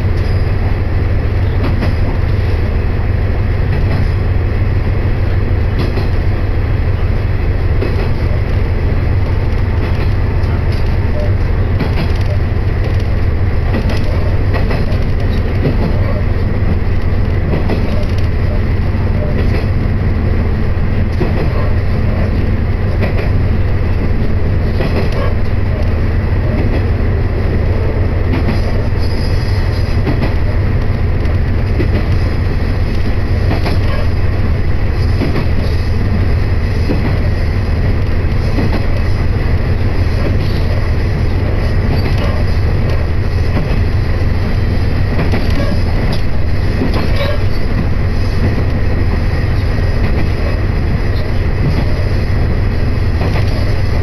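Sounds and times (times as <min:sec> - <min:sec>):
train engine and wheels drone: 0:00.0 - 0:54.0
clicks over rail joints: 0:09.3 - 0:16.2, 0:29.9 - 0:32.3.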